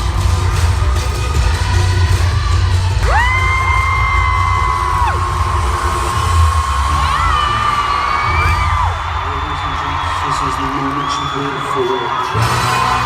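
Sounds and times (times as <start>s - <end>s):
live concert music with heavy bass: 0.0s - 13.0s
crowd whooping: 3.0s - 13.0s.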